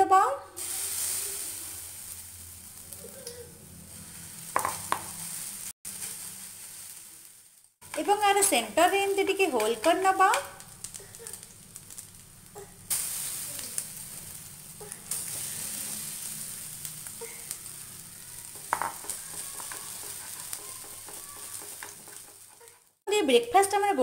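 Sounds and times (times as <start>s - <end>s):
batter sizzling in hot oil: 0.6s - 3.1s, 3.8s - 23.0s.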